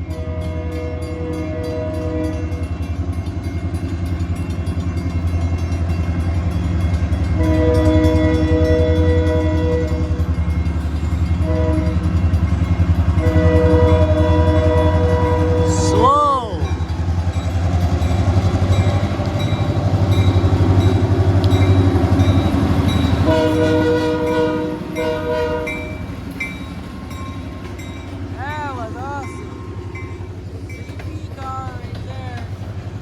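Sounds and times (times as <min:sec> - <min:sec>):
locomotive air horn blasts: 0:00.0 - 0:02.6, 0:07.3 - 0:10.2, 0:11.4 - 0:12.1, 0:13.2 - 0:16.0, 0:23.0 - 0:26.0
diesel locomotive rumble: 0:00.0 - 0:33.0.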